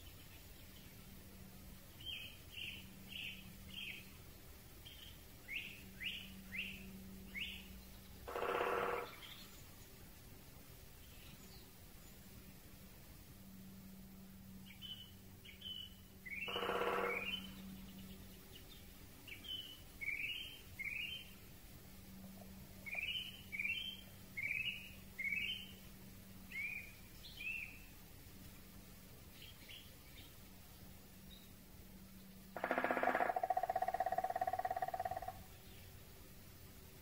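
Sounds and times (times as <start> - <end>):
birds chirping: 14.7 - 21.4, 22.1 - 25.8
harsh bird call: 16.3 - 17.5.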